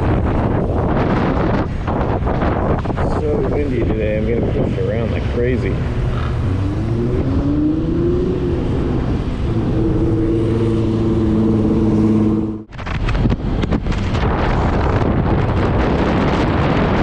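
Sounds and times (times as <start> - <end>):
gusty wind: 0.0 - 17.0
wind rumble on microphone: 0.0 - 17.0
scooter engine accelerating: 5.8 - 12.7.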